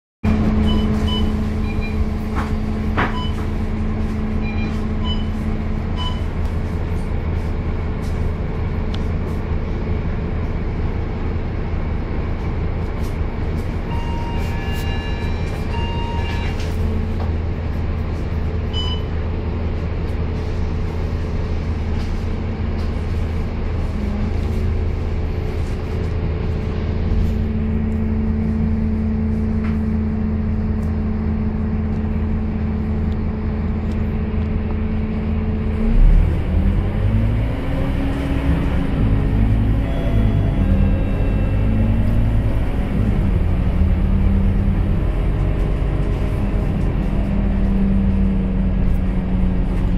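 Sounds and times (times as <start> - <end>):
bus diesel engine humming: 0.2 - 49.9
short electronic beeps: 0.6 - 2.1, 4.4 - 5.4, 13.9 - 16.6, 18.7 - 19.1.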